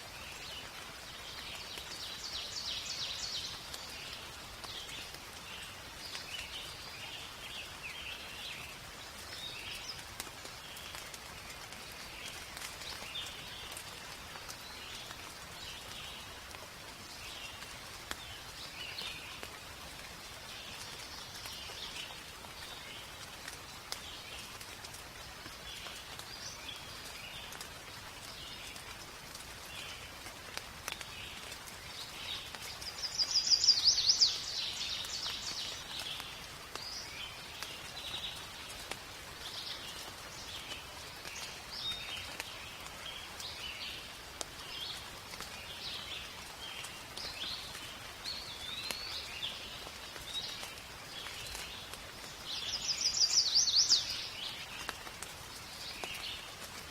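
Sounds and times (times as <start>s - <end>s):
rain falling: 0.0s - 56.9s
birds singing: 32.0s - 38.4s, 52.5s - 55.0s.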